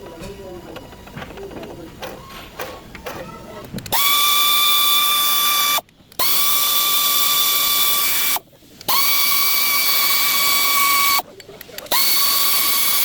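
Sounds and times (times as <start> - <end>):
power tool whining: 2.2 - 11.2, 11.9 - 13.0.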